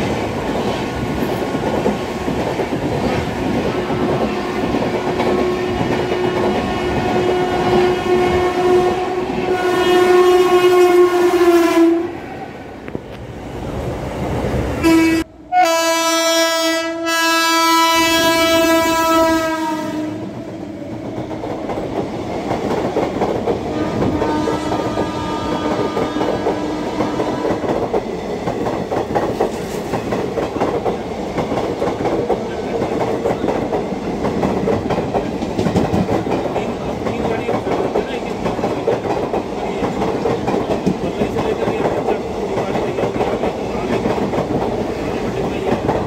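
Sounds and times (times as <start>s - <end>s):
train horn: 4.3s - 12.3s, 14.8s - 20.4s, 23.7s - 27.6s.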